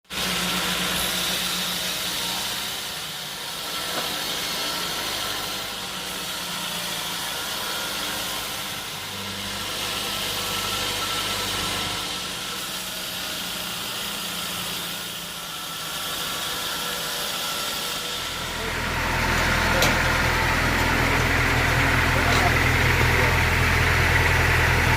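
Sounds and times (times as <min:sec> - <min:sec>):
hiss: 0:00.1 - 0:18.3
engine running: 0:00.1 - 0:24.9.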